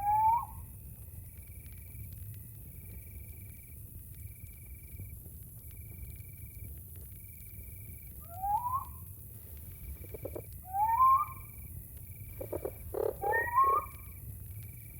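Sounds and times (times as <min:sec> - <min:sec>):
cricket trilling: 0:07.2 - 0:09.2, 0:09.8 - 0:14.9.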